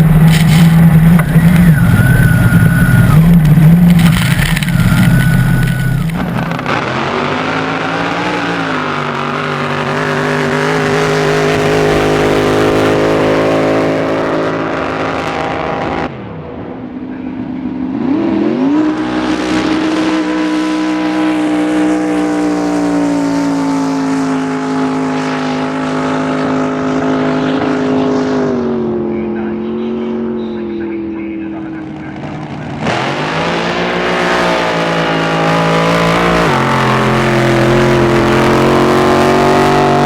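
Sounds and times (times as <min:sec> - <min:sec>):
racing boat engine revving: 0:00.0 - 0:16.3, 0:17.3 - 0:40.0.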